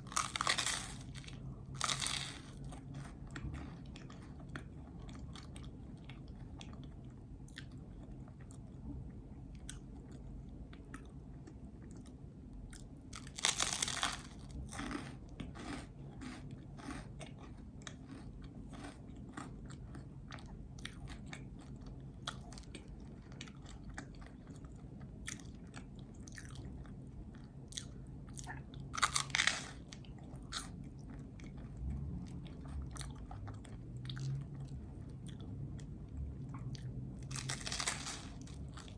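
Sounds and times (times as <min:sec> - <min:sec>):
low steady hum: 0:00.0 - 0:38.9
chewing with mouth clicks: 0:14.8 - 0:38.9.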